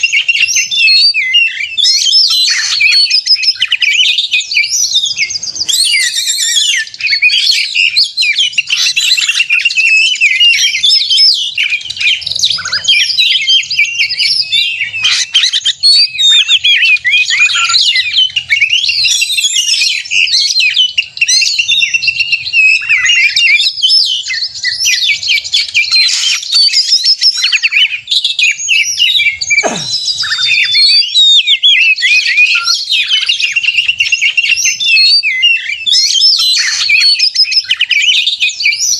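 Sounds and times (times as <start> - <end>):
bird singing whistles and trills: 0.0 - 38.9.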